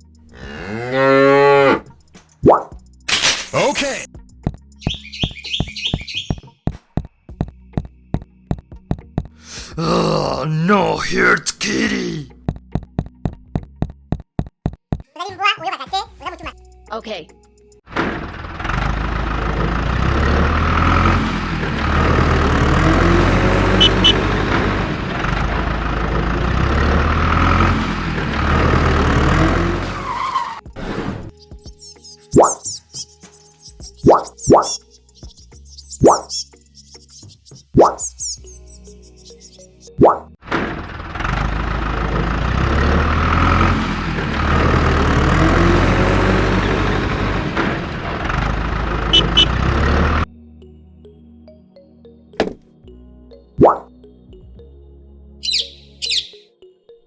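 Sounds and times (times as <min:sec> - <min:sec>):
engine idling: 0:17.9 - 0:30.6, 0:40.4 - 0:50.3.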